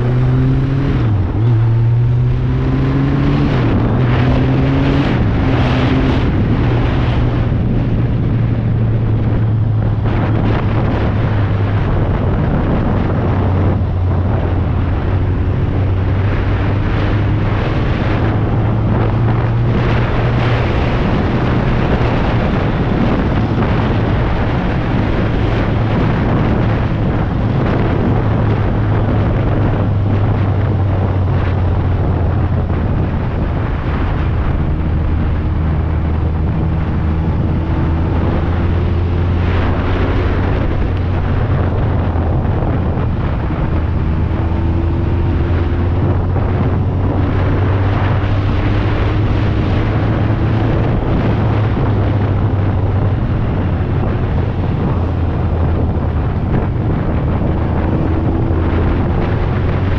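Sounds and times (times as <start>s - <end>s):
motorcycle engine cruising: 0.0s - 59.9s
wind rumble on microphone: 0.0s - 59.9s.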